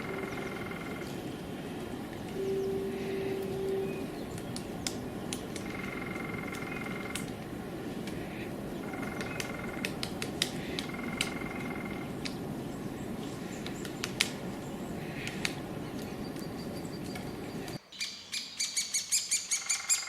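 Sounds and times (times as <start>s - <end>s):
bird trilling: 0.0s - 1.2s, 5.6s - 7.3s
background hiss: 0.0s - 19.6s.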